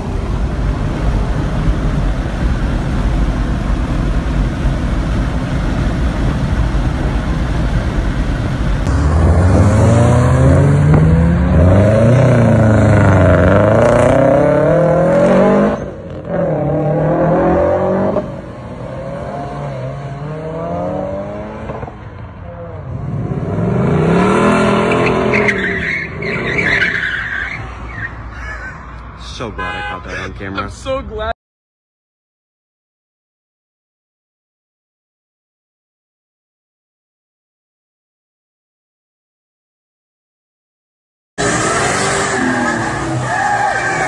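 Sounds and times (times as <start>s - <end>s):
car engine revving: 0.0s - 22.0s, 22.6s - 26.9s, 41.4s - 44.0s
wind and road noise in car: 0.0s - 26.0s.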